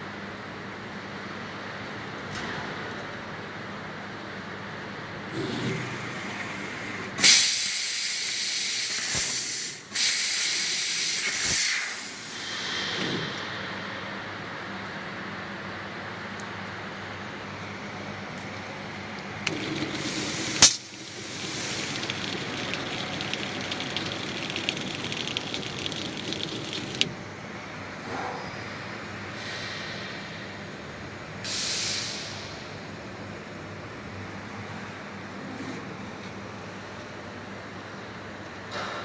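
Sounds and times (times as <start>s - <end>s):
machine hum: 12.2s - 27.9s
gas jet hissing with crackle: 19.5s - 27.1s.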